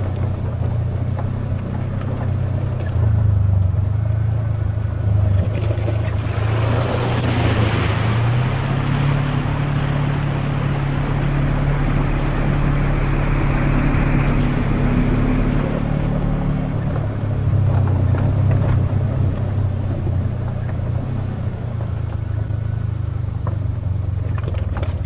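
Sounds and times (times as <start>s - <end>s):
tyre noise: 0.0s - 25.0s
vehicle engine running: 0.0s - 25.0s
rushing wind: 4.6s - 23.8s.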